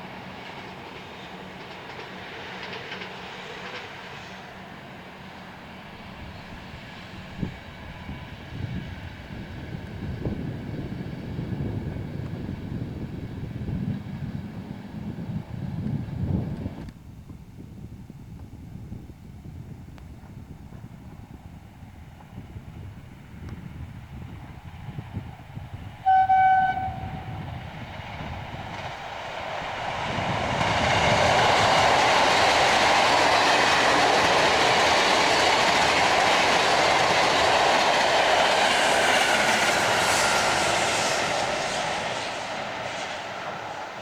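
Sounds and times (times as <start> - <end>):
train passing at speed: 0.0 - 44.0
train horn blast: 26.0 - 27.4.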